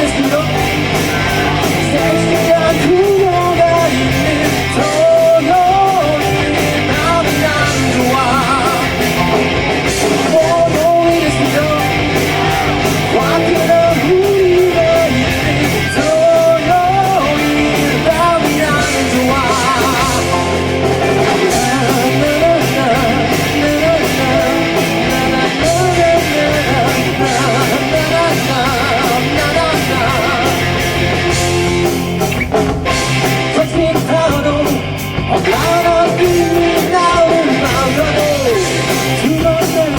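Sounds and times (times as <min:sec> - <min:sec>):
lead vocal singing: 0:00.0 - 0:31.5, 0:33.1 - 0:39.9
rock band playing live: 0:00.0 - 0:39.9.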